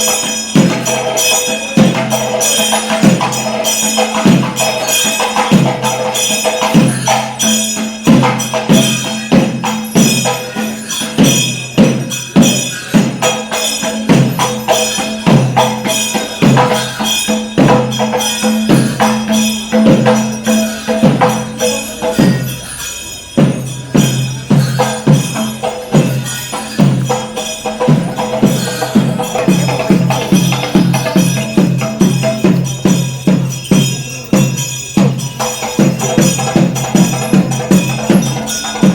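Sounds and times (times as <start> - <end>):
metallic cymbal or bell tones: 0.0 - 38.9.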